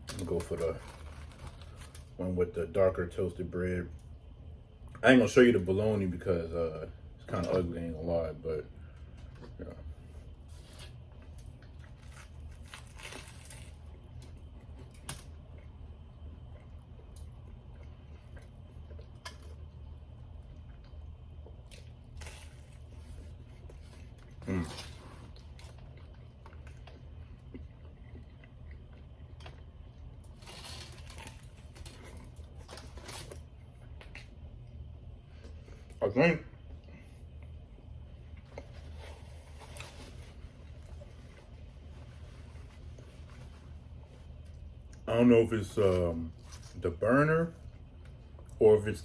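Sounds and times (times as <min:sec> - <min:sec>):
crunchy sandwich handling and biting: 0:00.0 - 0:02.4, 0:08.9 - 0:36.0, 0:36.6 - 0:46.8
steady low hum: 0:00.0 - 0:49.0
person chewing food: 0:10.6 - 0:34.4.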